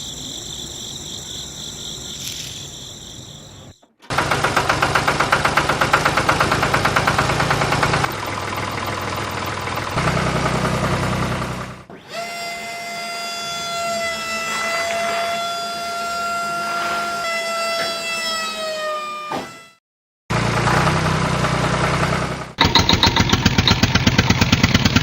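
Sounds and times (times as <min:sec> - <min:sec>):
tractor engine chugging: 0:03.4 - 0:11.9, 0:20.4 - 0:25.0
held horn-like tone: 0:12.6 - 0:19.8.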